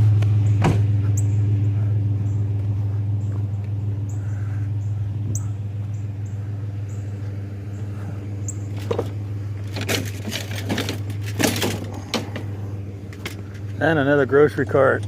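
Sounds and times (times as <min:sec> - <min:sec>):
truck engine idling: 0:00.0 - 0:15.0
clattering knocks and rattles: 0:08.7 - 0:12.5.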